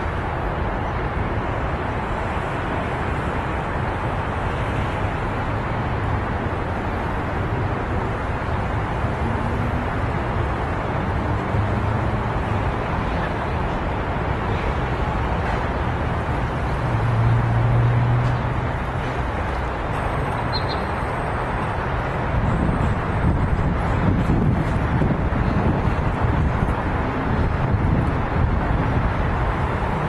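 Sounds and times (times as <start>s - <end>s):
outdoor rumble and hiss: 0.0s - 30.0s.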